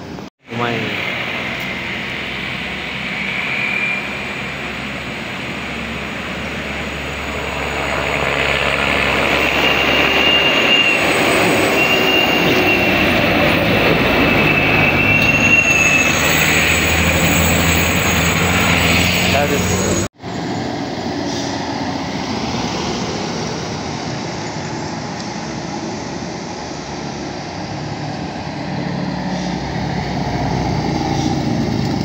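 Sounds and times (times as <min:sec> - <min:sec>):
heavy vehicle engine hum: 0:00.0 - 0:32.0
road noise: 0:00.0 - 0:32.0
high thin squeal: 0:02.8 - 0:05.0, 0:09.0 - 0:20.1.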